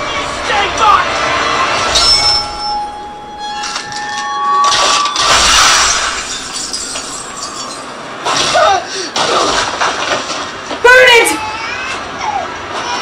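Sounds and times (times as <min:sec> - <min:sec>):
glass shattering effect: 0:01.9 - 0:02.8, 0:04.6 - 0:10.1.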